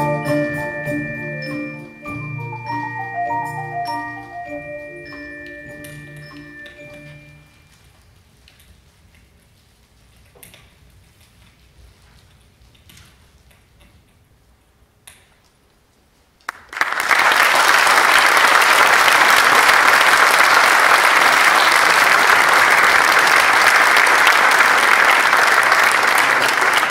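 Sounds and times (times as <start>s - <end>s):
audience applauding: 16.4s - 26.9s.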